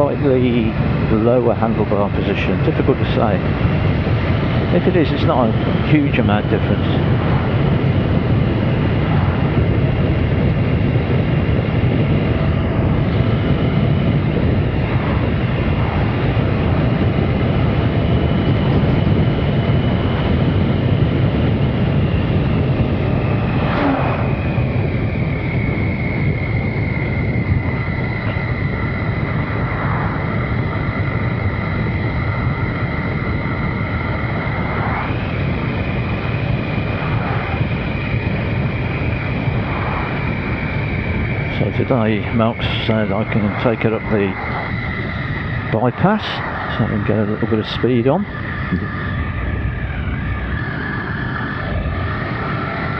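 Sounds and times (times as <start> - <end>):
high whine: 0.0 - 52.9
wind rushing over microphone: 0.0 - 52.9.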